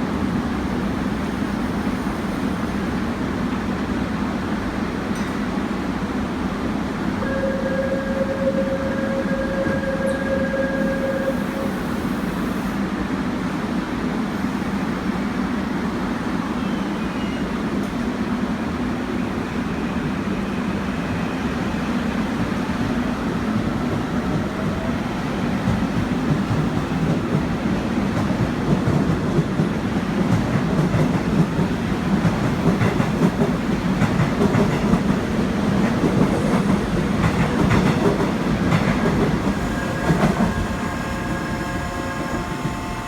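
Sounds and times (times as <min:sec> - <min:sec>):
train running and wheel noise: 0:00.0 - 0:43.0
steady held tone: 0:07.2 - 0:12.1.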